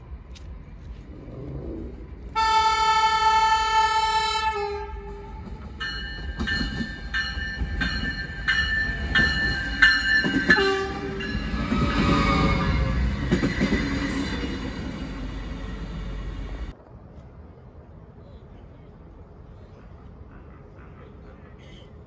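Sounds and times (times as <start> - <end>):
train wheels rumbling on rails: 0.0 - 17.3
train horn: 2.4 - 5.6, 10.5 - 13.1
train bell ringing: 5.4 - 13.1.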